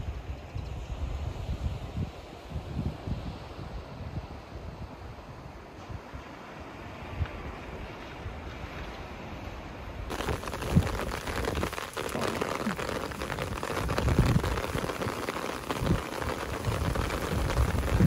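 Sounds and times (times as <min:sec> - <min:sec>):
wind: 0:00.0 - 0:18.0
heavy rain pattering: 0:10.1 - 0:18.0
sea waves: 0:10.1 - 0:18.0.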